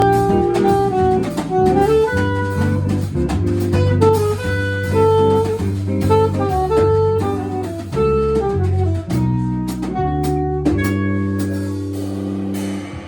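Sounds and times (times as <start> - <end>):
jazz quartet playing: 0.0 - 13.0
drum kit cymbal strokes: 10.9 - 13.0.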